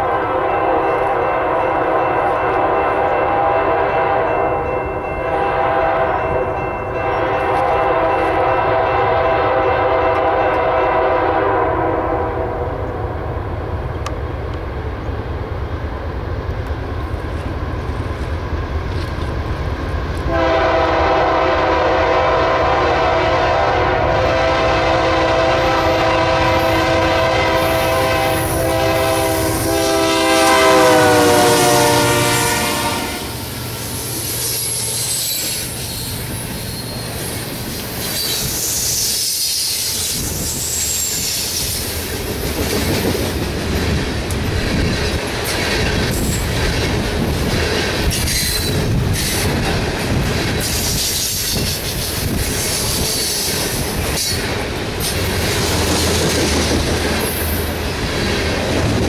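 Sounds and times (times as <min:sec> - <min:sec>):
locomotive air horn: 0:00.0 - 0:04.6, 0:05.2 - 0:12.9, 0:20.3 - 0:33.6
train rumbling past: 0:00.0 - 0:59.0
high wheel squeal: 0:33.7 - 0:41.7.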